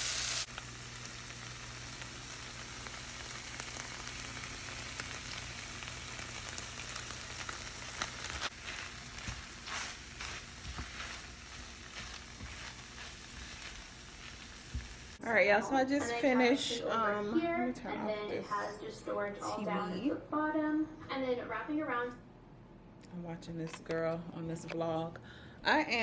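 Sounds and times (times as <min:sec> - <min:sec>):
food sizzling in a pan: 0:00.0 - 0:15.2
small pops and crackles: 0:00.4 - 0:15.2.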